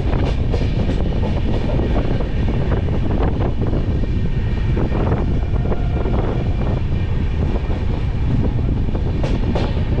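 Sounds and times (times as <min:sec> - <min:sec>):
rattles and clacks: 0:00.0 - 0:02.1, 0:09.0 - 0:10.0
train wheels rumbling: 0:00.0 - 0:10.0.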